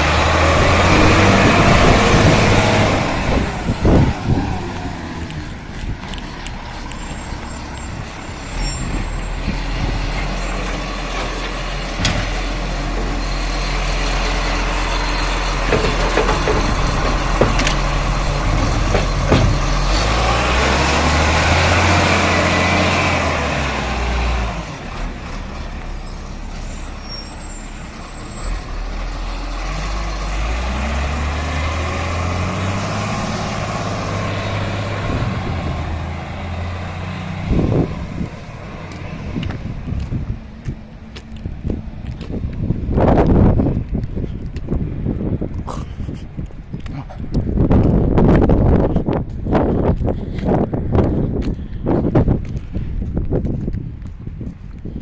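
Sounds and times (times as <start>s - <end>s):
garbage truck engine revving: 0.0s - 38.9s
knocks and clatters: 15.6s - 19.9s.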